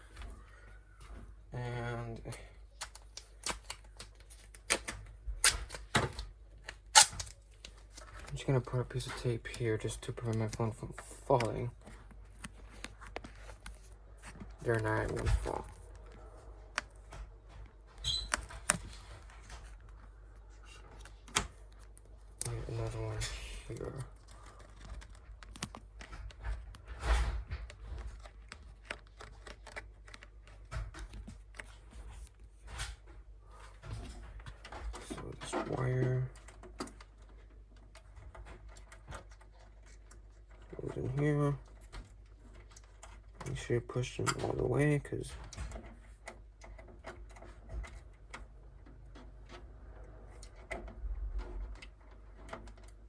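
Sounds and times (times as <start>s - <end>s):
small clicks and taps of wires: 1.0s - 33.0s, 33.6s - 53.0s
adhesive tape tearing: 6.7s - 7.4s.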